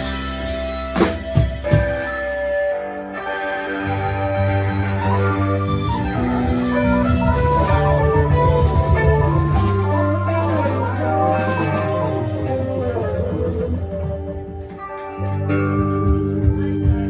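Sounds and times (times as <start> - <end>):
band playing music: 0.0 - 17.0
drums: 0.0 - 17.0.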